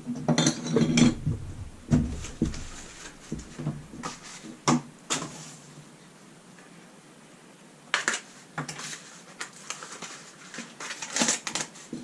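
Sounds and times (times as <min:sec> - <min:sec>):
caps knocking and clattering: 0:00.3 - 0:04.8.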